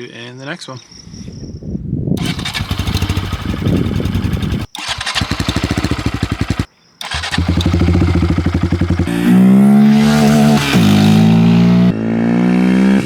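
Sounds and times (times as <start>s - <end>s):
motorcycle engine idling: 2.2s - 11.9s.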